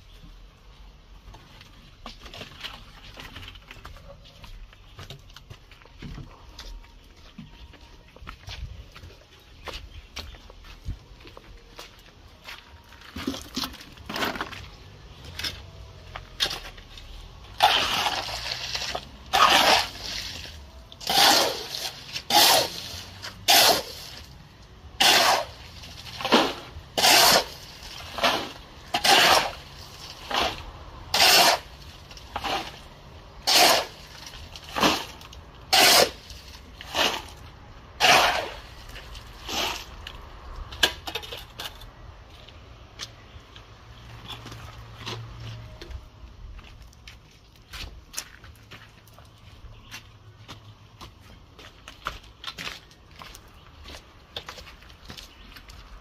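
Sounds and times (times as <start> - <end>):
hand tool scraping: 16.4 - 40.2.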